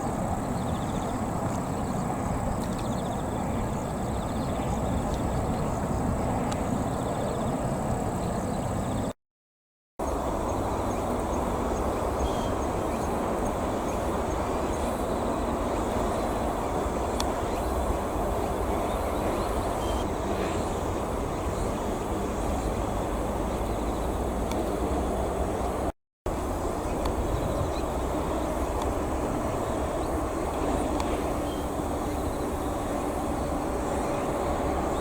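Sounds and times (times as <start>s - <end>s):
steady rushing noise: 10.0s - 35.0s.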